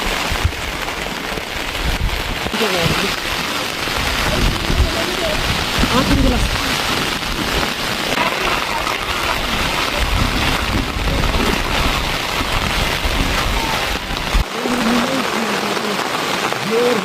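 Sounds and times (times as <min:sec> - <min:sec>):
steady rain hiss: 0:00.0 - 0:17.0
deep rumble: 0:01.7 - 0:14.5
person speaking: 0:02.5 - 0:03.3, 0:04.0 - 0:07.0, 0:13.5 - 0:17.0.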